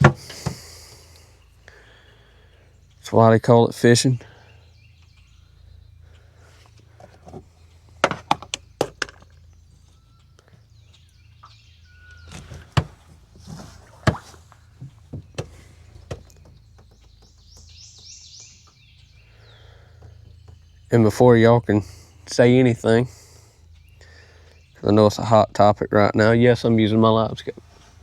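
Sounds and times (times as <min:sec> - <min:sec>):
bird chirps: 0:00.0 - 0:27.8
steady low hum: 0:00.0 - 0:28.0
fishing gear knocks and clicks: 0:07.0 - 0:09.6, 0:12.1 - 0:18.1.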